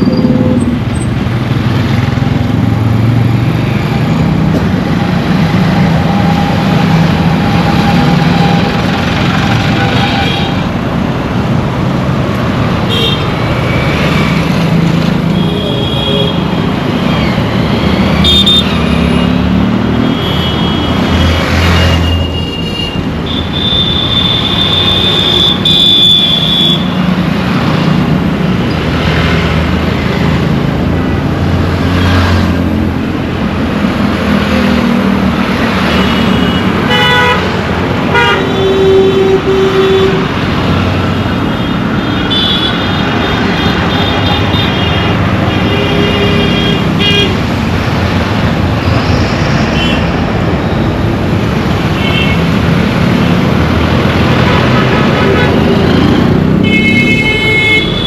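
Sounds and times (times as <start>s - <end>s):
traffic rumble: 0.0s - 58.0s
car horns honking: 36.1s - 40.5s.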